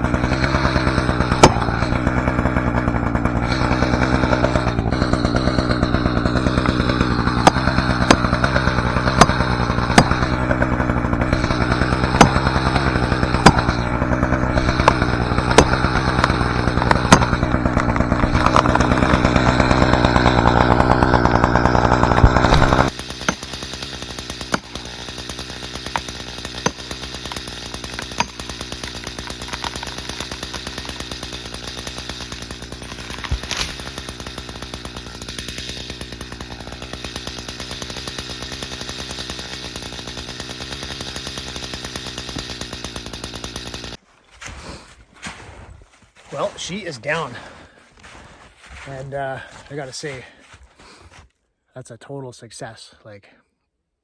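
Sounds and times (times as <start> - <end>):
sharp wood crack: 0.0 - 44.0
chainsaw idling: 0.0 - 45.0, 46.2 - 51.2
wood crackling: 0.0 - 51.1
hammer striking steel wedges: 14.7 - 19.1, 24.5 - 31.0.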